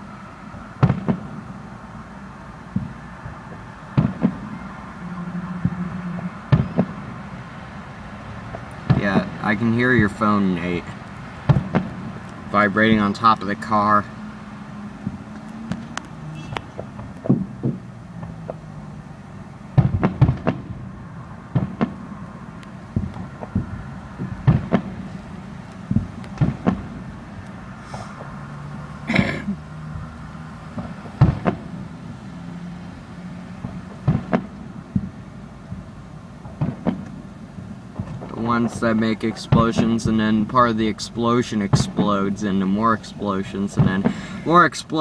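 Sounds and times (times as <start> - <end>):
low steady hum: 0.0 - 27.8
fireworks booms and cracks: 0.8 - 1.6, 2.7 - 4.8, 5.6 - 14.0, 15.0 - 18.7, 19.7 - 28.4, 30.7 - 31.9, 33.6 - 41.0, 41.6 - 42.6, 43.7 - 44.6.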